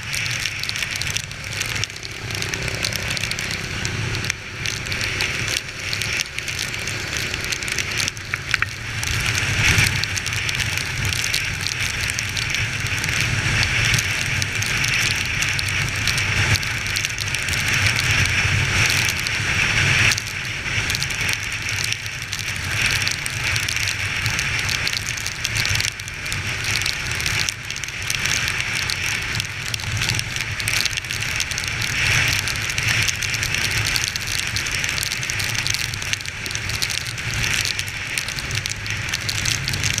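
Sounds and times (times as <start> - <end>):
wind and rain noise: 0.0 - 40.0.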